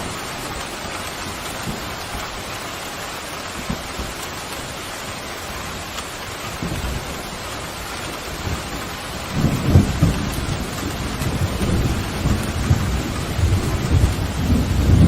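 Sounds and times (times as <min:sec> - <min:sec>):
heavy rain: 0:00.0 - 0:15.0
low rolling thunder: 0:06.6 - 0:15.0.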